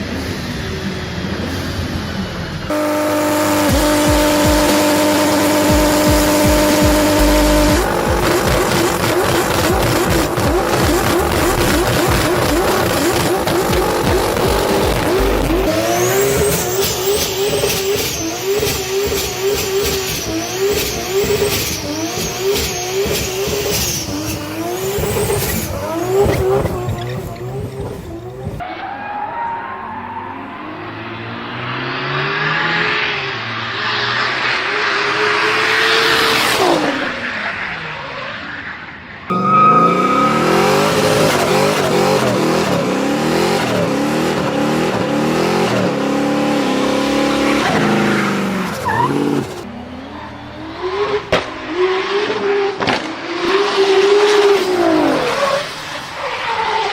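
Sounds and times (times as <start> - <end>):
car engines revving: 0.0 - 56.9
car accelerating past: 29.8 - 37.2, 39.3 - 49.6.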